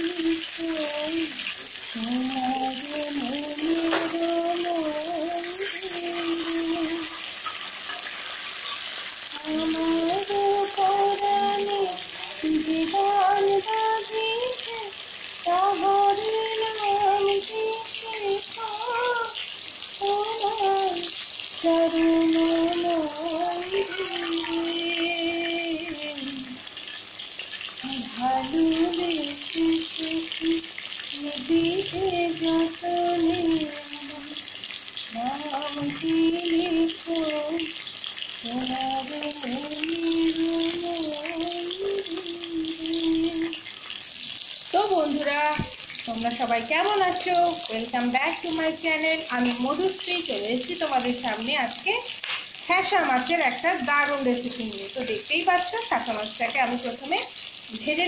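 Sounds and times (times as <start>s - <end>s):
fish frying in hot oil: 0.0s - 58.0s.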